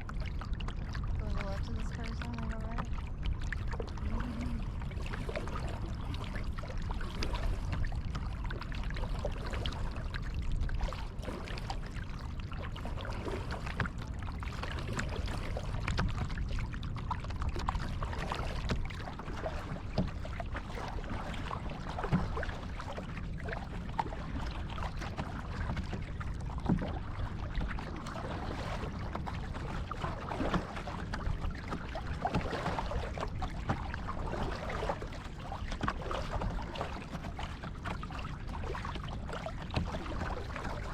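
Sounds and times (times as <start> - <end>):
low rumble: 0.0 - 10.4
paddle splashing and dripping: 0.0 - 40.9.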